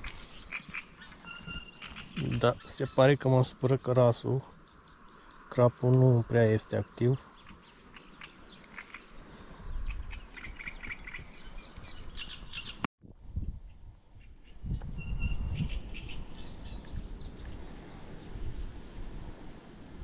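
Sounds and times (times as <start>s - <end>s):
small birds chirping: 0.0s - 12.9s, 14.2s - 17.6s.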